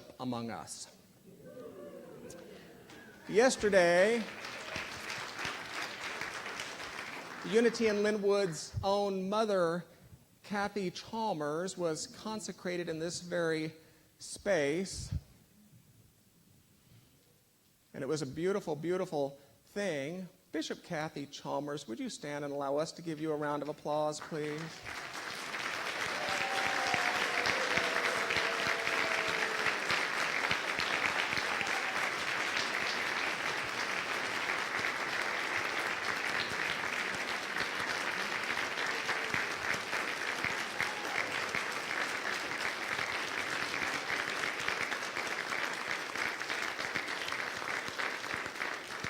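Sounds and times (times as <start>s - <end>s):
crowd clapping: 1.4s - 8.6s, 24.2s - 49.0s.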